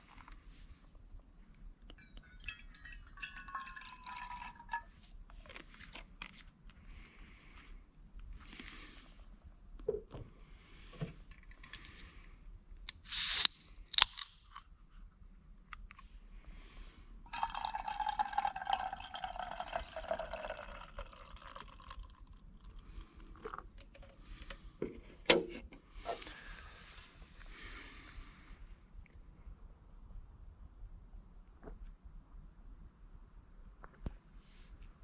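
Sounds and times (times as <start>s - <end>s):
liquid pouring into a container: 2.0s - 4.9s, 17.3s - 23.7s.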